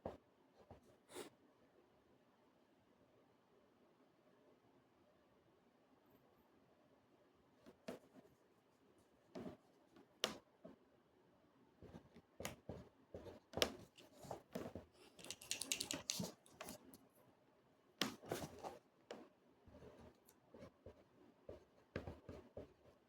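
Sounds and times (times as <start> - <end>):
pencil scratching on paper: 18.0 - 23.0.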